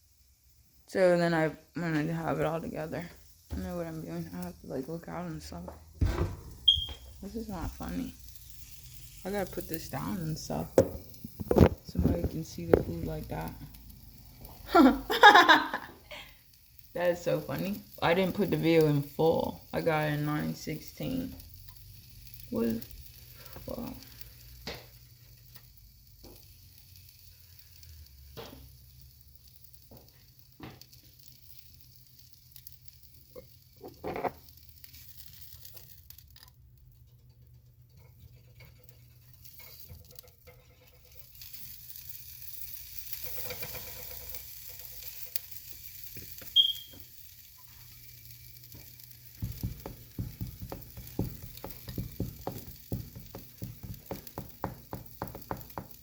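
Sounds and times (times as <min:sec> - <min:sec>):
sausages sizzling in a frying pan: 0:00.0 - 0:56.0
ticking and knocking: 0:49.4 - 0:56.0.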